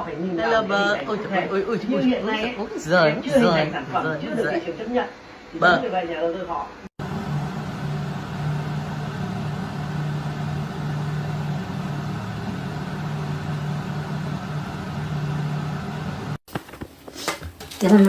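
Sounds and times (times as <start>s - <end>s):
low motor hum: 7.0s - 16.4s.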